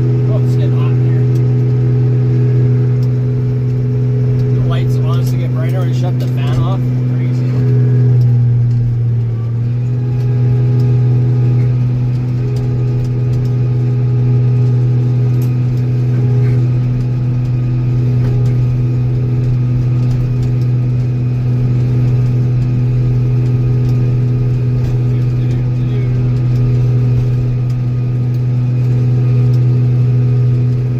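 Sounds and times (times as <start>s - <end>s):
tractor engine droning: 0.0s - 30.9s.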